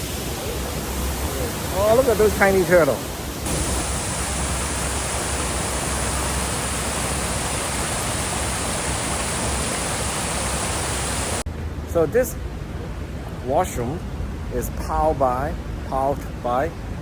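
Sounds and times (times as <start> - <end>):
rush of falling water: 0.0 - 11.5.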